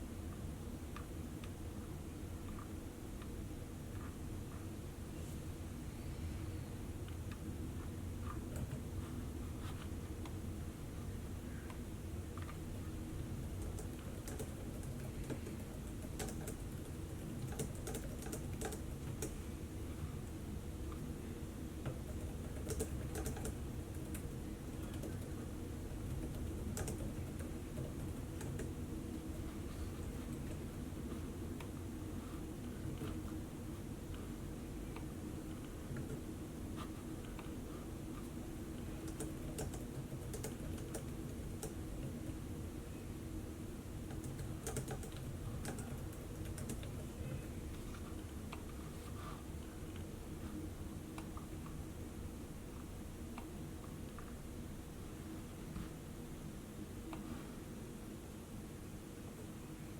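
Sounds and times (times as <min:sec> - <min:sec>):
low background hum: 0:00.0 - 0:59.9
laptop keyboard typing: 0:08.2 - 0:08.9, 0:13.4 - 0:19.4, 0:21.8 - 0:30.7, 0:38.2 - 0:42.2, 0:44.0 - 0:48.8.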